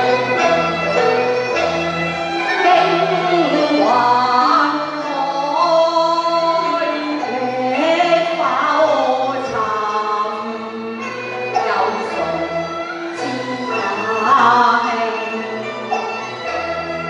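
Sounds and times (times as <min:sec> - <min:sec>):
instrumental accompaniment: 0:00.0 - 0:17.0
person singing opera: 0:02.4 - 0:10.7.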